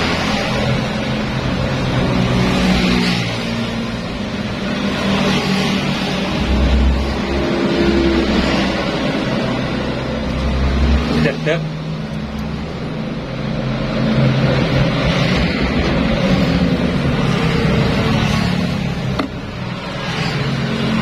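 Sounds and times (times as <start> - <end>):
motor scooter engine humming: 16.6 - 21.0.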